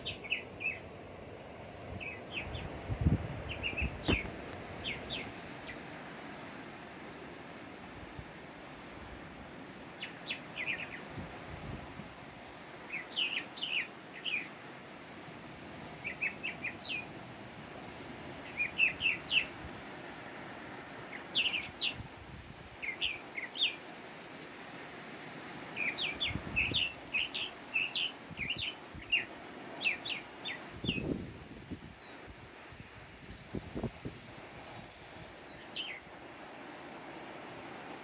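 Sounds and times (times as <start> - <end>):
songbird chirping: 0.0 - 6.5, 9.8 - 11.5, 12.5 - 15.0, 15.9 - 17.1, 18.2 - 19.6, 20.9 - 22.1, 22.7 - 24.0, 25.6 - 32.3, 34.5 - 36.5
low background hiss: 0.0 - 38.0.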